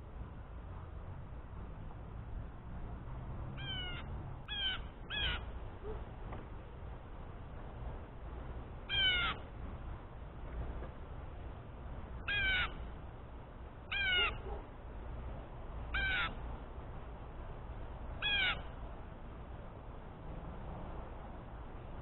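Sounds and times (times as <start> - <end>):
jay harsh calls: 8.9 - 9.4, 13.9 - 14.6.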